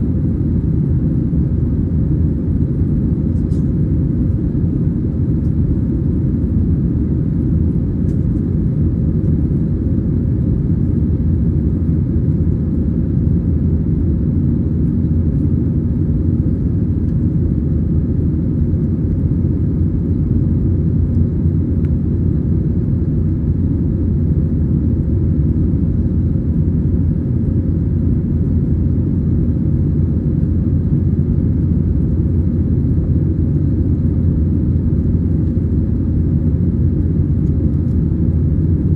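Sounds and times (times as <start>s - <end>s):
air noise along fuselage: 0.0s - 38.9s
airplane cabin engine rumble: 0.0s - 38.9s.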